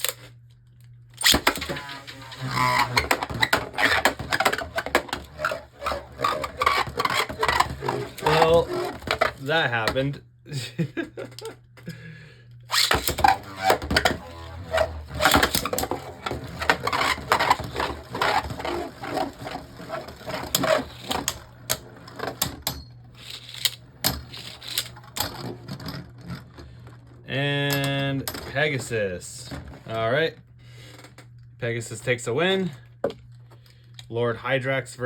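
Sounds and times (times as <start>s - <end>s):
spinning tops clashing: 1.2s - 9.5s.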